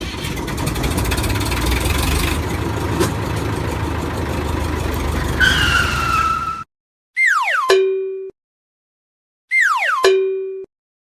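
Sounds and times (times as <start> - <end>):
vehicle engine rumbling: 0.0 - 6.7.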